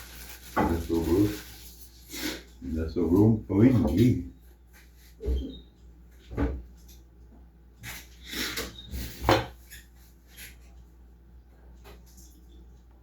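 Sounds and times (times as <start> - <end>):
kitchen items clattering: 0.0 - 2.5.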